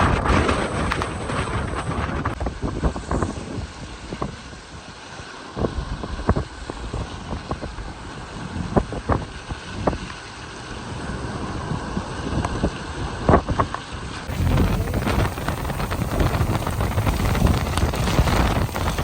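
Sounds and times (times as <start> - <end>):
rain: 14.3 - 19.0
wind rumbling on microphone: 14.3 - 19.0.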